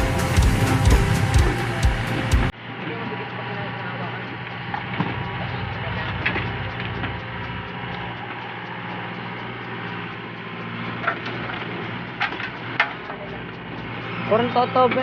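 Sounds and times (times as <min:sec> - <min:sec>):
backhoe engine running: 0:00.0 - 0:15.0.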